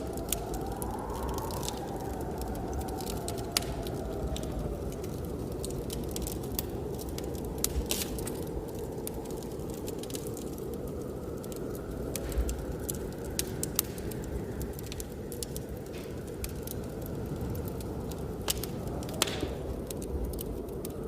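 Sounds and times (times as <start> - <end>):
faint wind whistle: 0.0 - 5.9
blizzard wind rushing: 0.0 - 21.0
wood fire crackling: 0.0 - 21.0.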